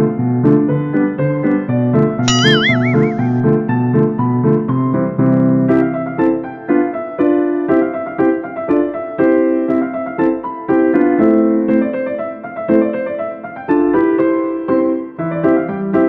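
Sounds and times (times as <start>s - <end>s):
piano melody: 2.3s - 3.4s.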